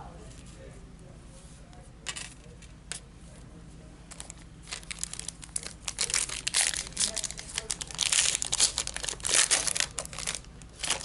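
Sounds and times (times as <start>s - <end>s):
foil wrapper crinkling and tearing: 4.1s - 11.0s.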